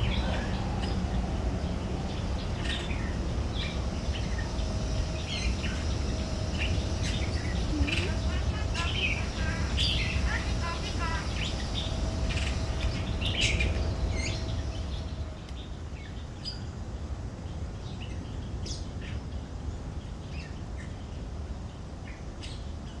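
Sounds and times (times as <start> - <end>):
low background rumble: 0.0 - 16.2
birds chirping: 0.0 - 16.8.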